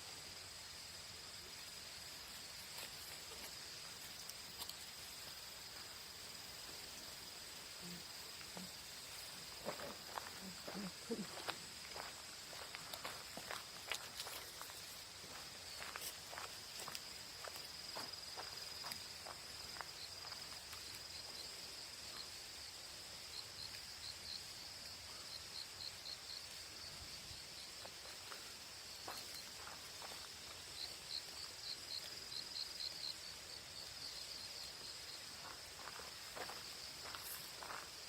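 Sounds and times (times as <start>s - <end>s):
crickets trilling: 0.0s - 38.0s
pulsing insect chirp: 0.0s - 38.0s
footsteps: 8.4s - 20.6s, 27.8s - 30.6s, 35.4s - 38.0s.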